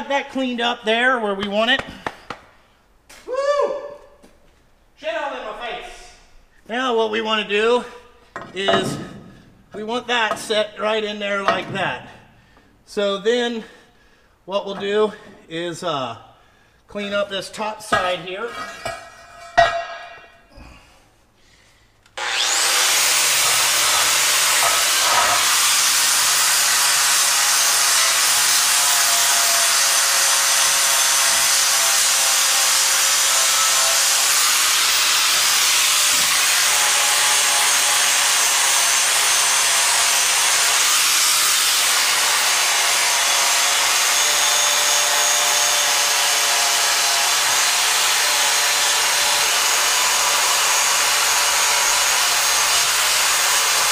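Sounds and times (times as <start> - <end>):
grinder grinding steel: 22.2 - 53.9.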